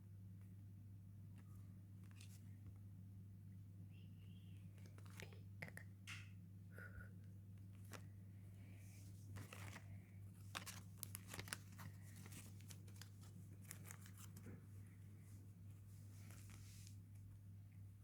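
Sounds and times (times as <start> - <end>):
foil pack crinkling and tearing: 10.4 - 14.4.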